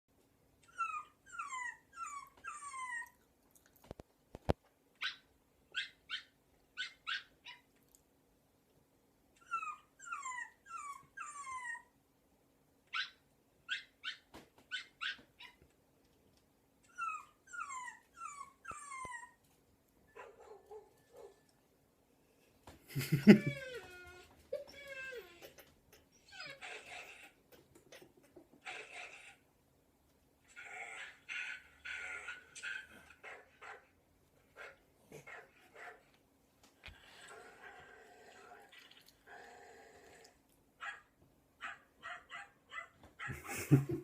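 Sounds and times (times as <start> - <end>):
recorded dog whimpers and yips: 0.6 - 3.2, 5.0 - 7.7, 9.4 - 12.0, 12.9 - 15.7, 16.8 - 19.5, 20.1 - 21.6, 23.0 - 29.4, 30.5 - 33.9, 40.8 - 43.9.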